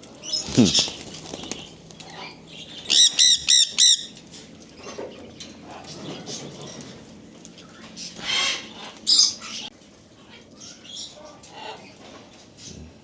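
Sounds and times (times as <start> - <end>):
faint calls of caged birds: 0.0 - 13.0
parrot calling: 0.3 - 1.6.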